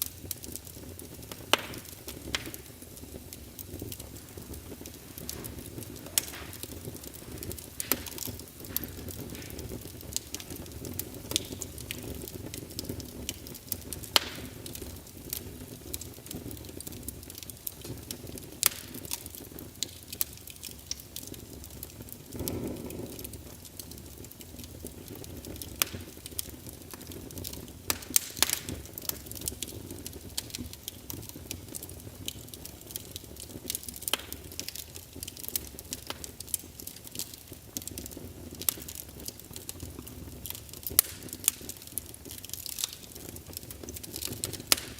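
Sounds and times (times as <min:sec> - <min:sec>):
burning wood crackling and popping: 0:00.0 - 0:44.9
fire flames rumbling: 0:00.0 - 0:44.9
fire whoosh: 0:22.3 - 0:23.4.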